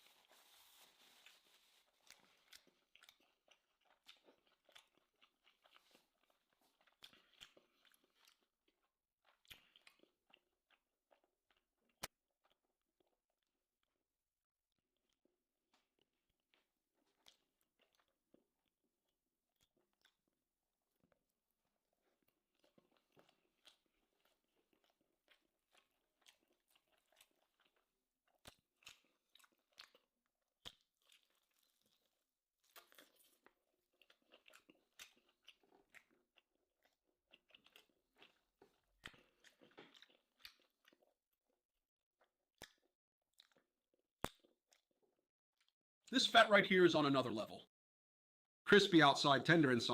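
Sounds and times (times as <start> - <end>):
soft crunches: 0.0 - 2.7
person chewing: 0.0 - 14.0, 14.9 - 45.8.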